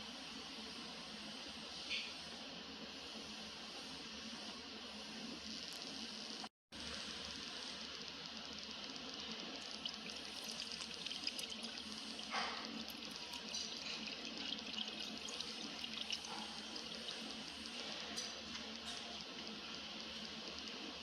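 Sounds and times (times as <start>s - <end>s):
liquid trickling: 8.6s - 21.0s.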